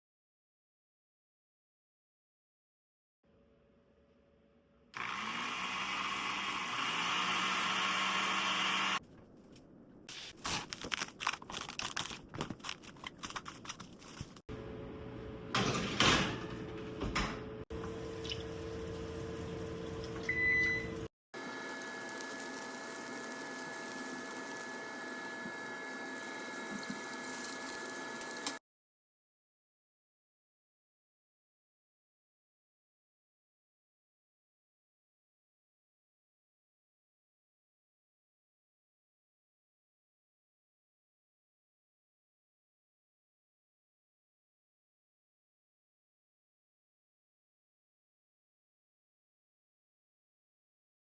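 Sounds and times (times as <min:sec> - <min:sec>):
water running: 0:17.7 - 0:21.1.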